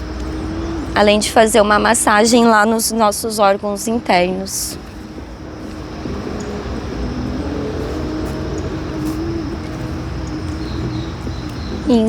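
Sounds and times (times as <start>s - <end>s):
vehicle engine running: 4.2s - 12.0s.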